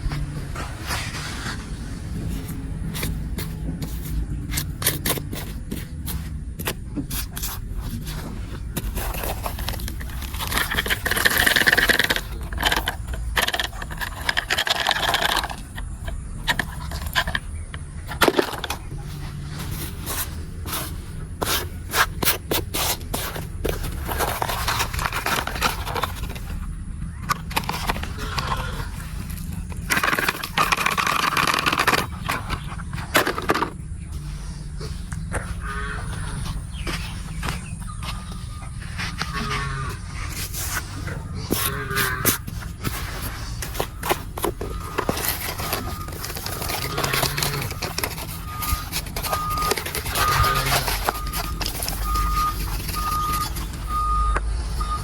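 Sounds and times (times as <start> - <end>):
toy wheels rolling on hard surface: 7.3 - 33.8, 39.0 - 54.2.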